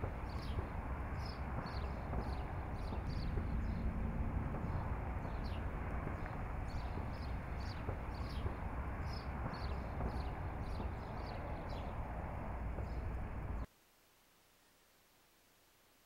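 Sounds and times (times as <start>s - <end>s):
low outdoor rumble and hiss: 0.0s - 16.0s.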